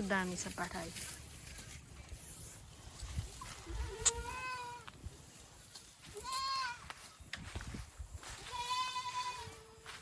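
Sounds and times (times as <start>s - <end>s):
goat kid bleating: 3.4s - 5.0s, 6.0s - 7.0s, 8.2s - 10.0s.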